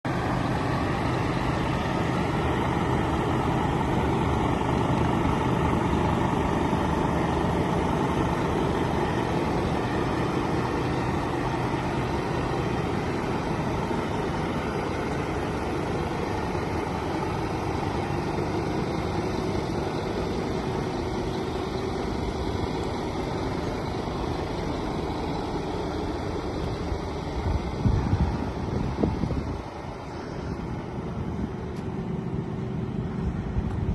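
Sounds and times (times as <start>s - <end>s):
truck diesel engine idling: 0.0s - 33.9s
wind buffeting microphone: 26.9s - 30.0s.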